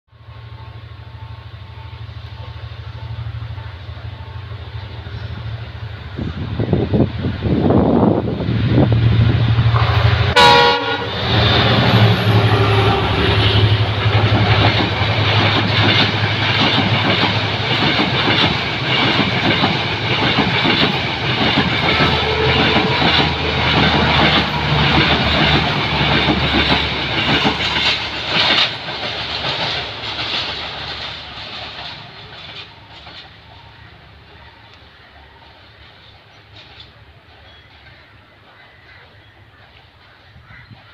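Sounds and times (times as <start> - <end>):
train coaches rumbling past: 0.1 - 40.9
wheels clacking over rail joints: 9.5 - 40.9.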